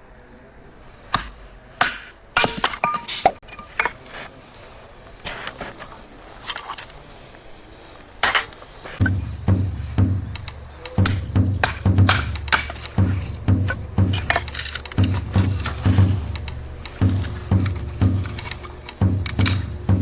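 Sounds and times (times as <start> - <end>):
background music with drum beat: 9.0 - 20.0
chopping knocks on wood: 9.0 - 20.0.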